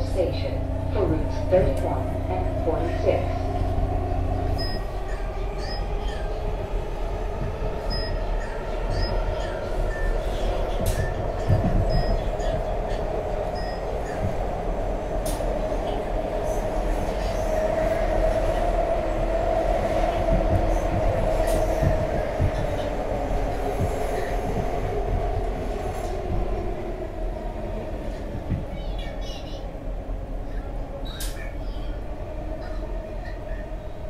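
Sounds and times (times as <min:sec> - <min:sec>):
mid-pitched hum: 0:00.0 - 0:17.3
train wheels rumbling on rail: 0:00.0 - 0:34.0.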